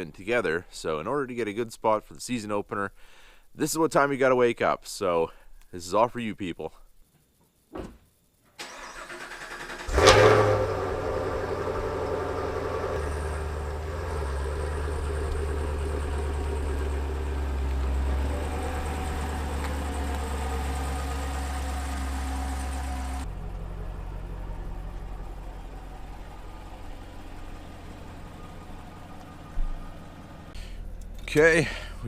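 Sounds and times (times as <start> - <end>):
car engine cranking and starting: 8.6 - 32.0
car engine idling: 8.9 - 32.0.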